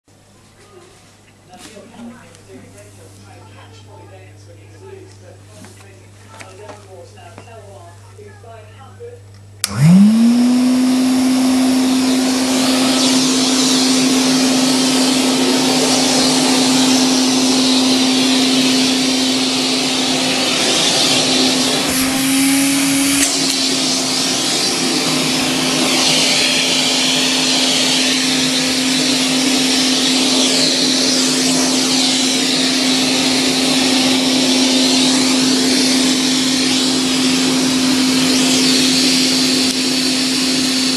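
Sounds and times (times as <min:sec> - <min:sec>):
vacuum cleaner running: 0:09.6 - 0:40.9.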